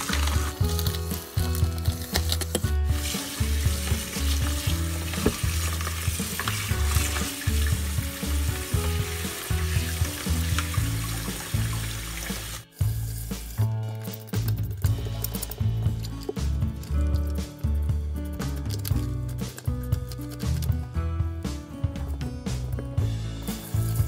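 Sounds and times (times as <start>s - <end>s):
background music with bass: 0.0s - 24.0s
tap water running into sink: 3.0s - 12.6s.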